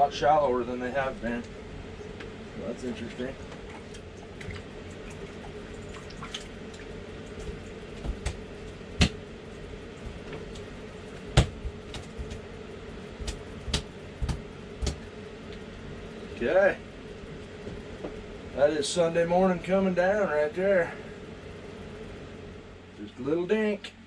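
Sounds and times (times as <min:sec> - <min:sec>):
steady hum: 0:00.0 - 0:24.0
water splashing and dripping: 0:03.5 - 0:08.4
sharp clicks and knocks: 0:11.4 - 0:12.4, 0:13.2 - 0:15.6.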